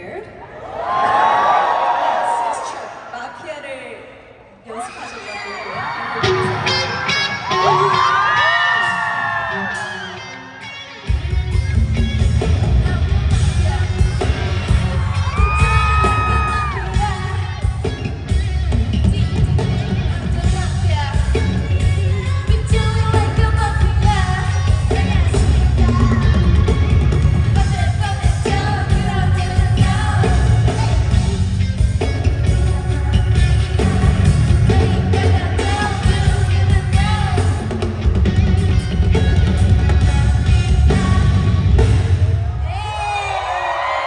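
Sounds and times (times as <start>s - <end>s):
live band playing pop: 6.0s - 42.9s
people singing: 21.3s - 31.4s, 32.4s - 37.7s.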